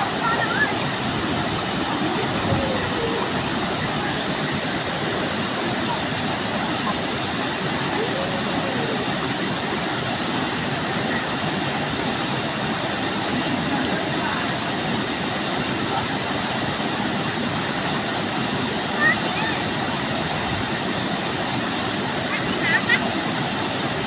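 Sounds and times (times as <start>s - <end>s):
faint voices: 0.0s - 12.1s
waterfall rushing: 0.0s - 24.0s.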